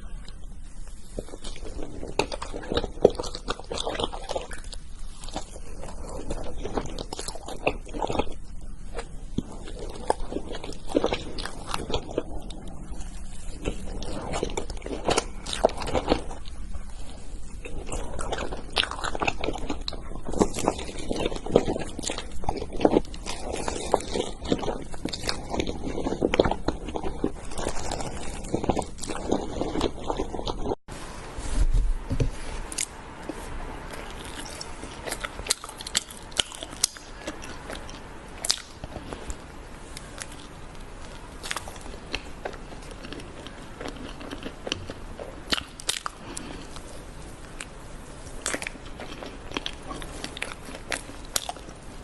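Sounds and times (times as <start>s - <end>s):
person chewing crunchy food: 0.0s - 30.8s, 32.3s - 52.0s.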